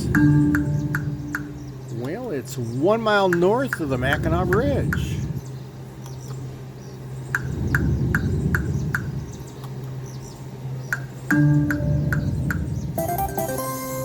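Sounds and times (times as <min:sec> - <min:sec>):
electronic machine tones: 0:00.0 - 0:01.8, 0:11.0 - 0:14.0
low hum and murmur: 0:00.0 - 0:13.6.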